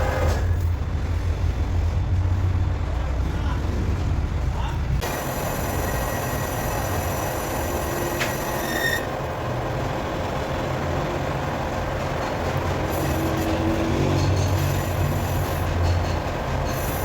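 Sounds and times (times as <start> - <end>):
heavy machinery grinding: 5.0 - 17.0.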